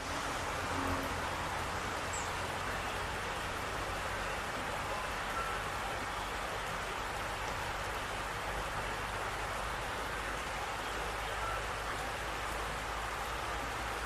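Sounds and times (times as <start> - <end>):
dripping and falling water: 0.0 - 14.0.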